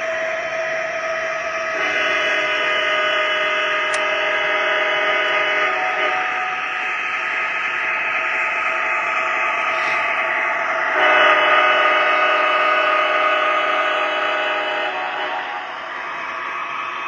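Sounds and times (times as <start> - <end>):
diesel locomotive engine running: 0.0 - 17.0
multi-note train horn: 1.7 - 6.8, 10.8 - 16.0.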